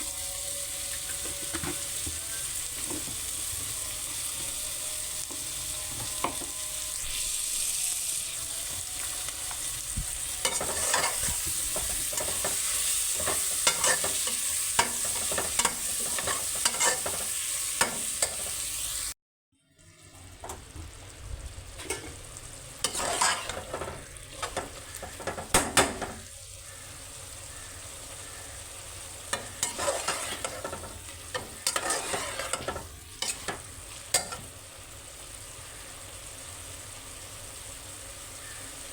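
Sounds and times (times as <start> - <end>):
food sizzling in a pan: 0.0 - 38.9
spoon scraping a pan: 0.1 - 18.7, 21.8 - 26.3, 29.0 - 34.5.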